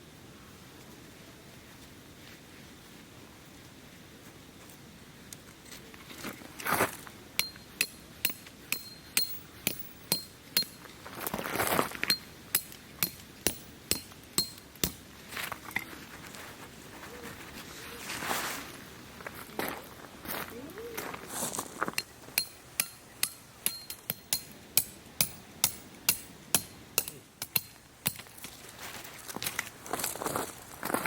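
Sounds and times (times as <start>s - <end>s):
hammer striking metal tent peg: 7.4s - 10.8s, 12.1s - 15.0s, 22.0s - 28.3s
rustling: 10.7s - 12.8s, 14.8s - 22.6s, 27.7s - 31.0s.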